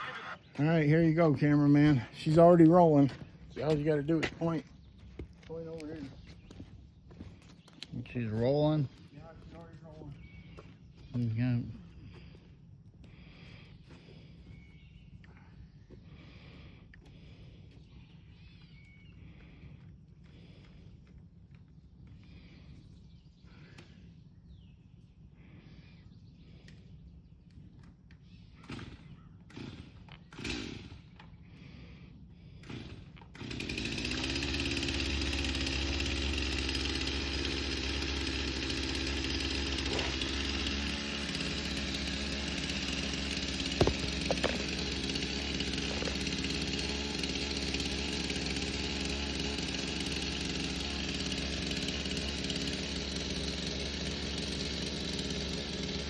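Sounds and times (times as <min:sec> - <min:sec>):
chainsaw running: 0:00.0 - 0:04.7, 0:18.6 - 0:22.5, 0:28.6 - 0:31.9, 0:32.5 - 0:56.0.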